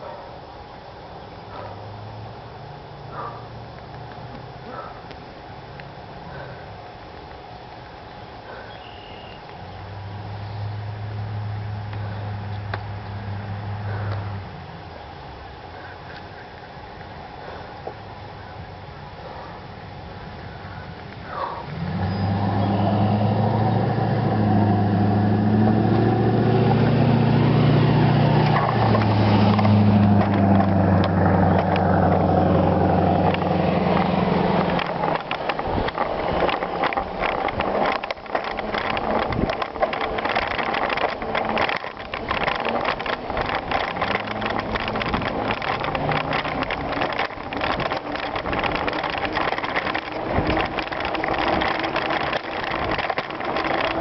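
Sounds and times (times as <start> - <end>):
vehicle engine running: 0.9 - 54.0
rattling and clattering: 23.6 - 54.0.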